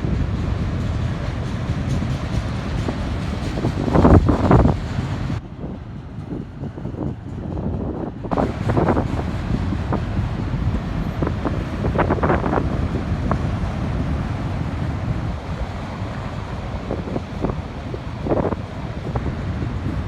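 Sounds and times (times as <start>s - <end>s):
freight train rumble: 0.0s - 20.0s
wind buffeting microphone: 0.0s - 20.0s.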